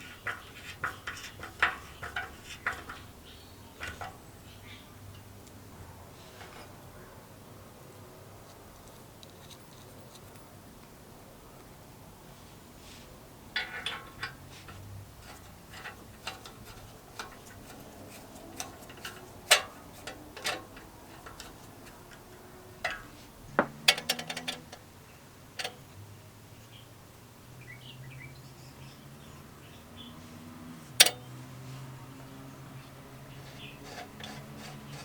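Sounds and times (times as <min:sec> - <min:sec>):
small metal parts clicking: 0:00.0 - 0:04.2, 0:13.6 - 0:24.9, 0:31.0 - 0:31.3, 0:33.4 - 0:35.0.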